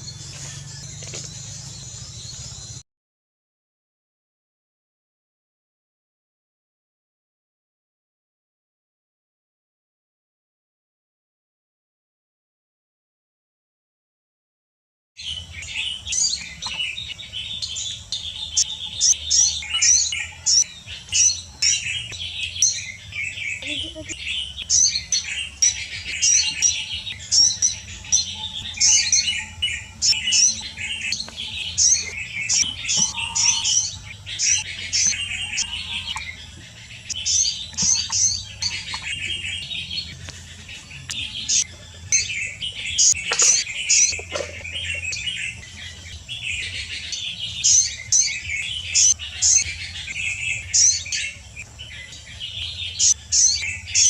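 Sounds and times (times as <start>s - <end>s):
small birds chirping: 0.0s - 2.8s, 15.2s - 54.0s.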